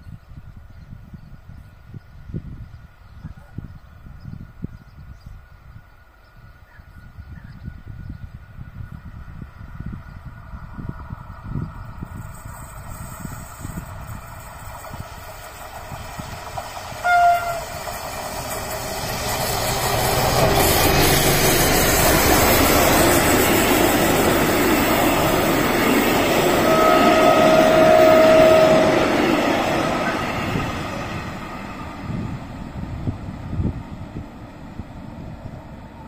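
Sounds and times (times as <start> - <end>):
train passing: 8.4 - 36.0
train horn blasts: 16.9 - 17.8, 25.6 - 30.8.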